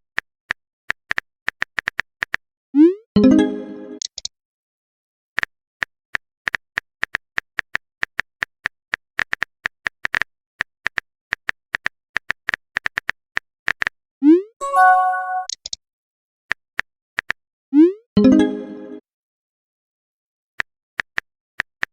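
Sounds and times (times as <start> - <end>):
pop-and-chime message alert: 3.2 - 4.0, 14.6 - 15.5, 18.2 - 19.0.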